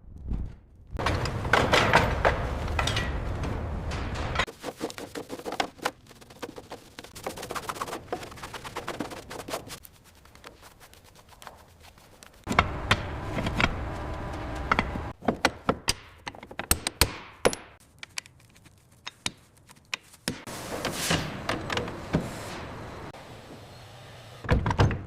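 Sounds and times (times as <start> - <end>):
metallic clanks and rattles: 1.0 - 4.6.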